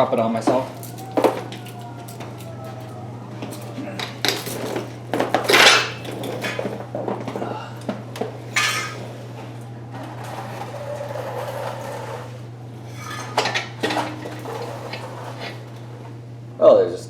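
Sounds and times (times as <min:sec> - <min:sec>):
steady low hum: 0:00.0 - 0:17.0
metal tools clinking: 0:00.4 - 0:02.9, 0:03.5 - 0:06.8, 0:08.5 - 0:09.2, 0:12.9 - 0:15.6.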